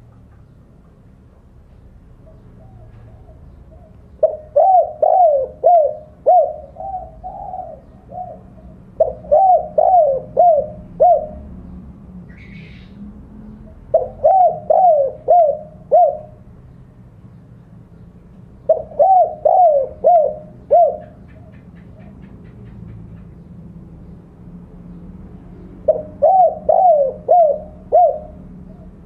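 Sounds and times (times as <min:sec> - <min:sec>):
dove cooing: 0:02.2 - 0:11.8, 0:13.6 - 0:16.5, 0:18.6 - 0:22.6, 0:25.8 - 0:29.0.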